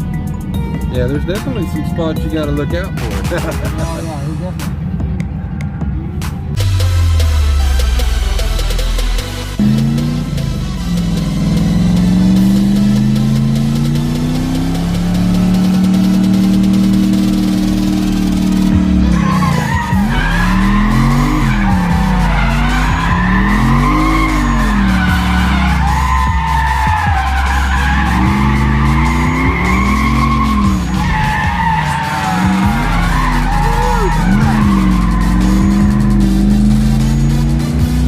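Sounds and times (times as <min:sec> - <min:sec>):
car engine revving: 0:00.0 - 0:38.0
tyre squeal: 0:17.4 - 0:38.0.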